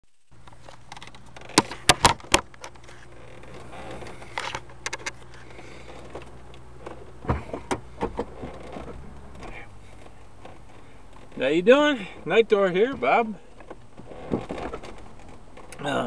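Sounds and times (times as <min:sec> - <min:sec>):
car engine hum inside cabin: 0:00.0 - 0:16.0
thump: 0:07.2 - 0:09.6.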